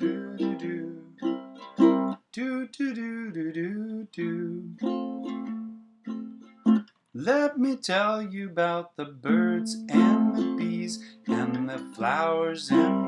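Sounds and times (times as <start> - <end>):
person singing do do do: 0.0 - 1.2, 2.1 - 5.0, 7.2 - 13.0
ukulele playing: 0.0 - 2.3, 3.8 - 7.5, 9.2 - 13.0.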